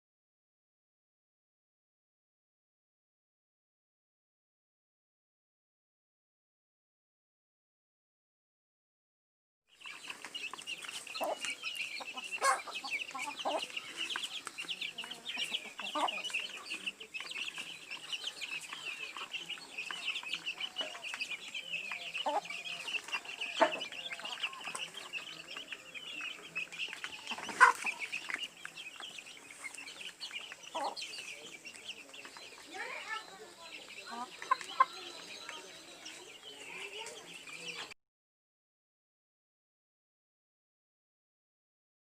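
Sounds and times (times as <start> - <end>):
poultry flock peeping and chirping: 9.7 - 38.0.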